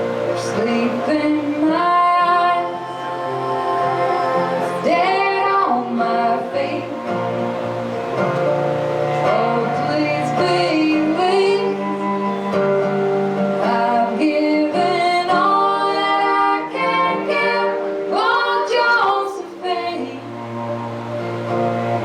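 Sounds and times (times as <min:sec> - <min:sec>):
acoustic string instruments: 0:00.0 - 0:22.0
plucked guitar: 0:00.0 - 0:22.0
women singing in harmony: 0:00.0 - 0:22.0.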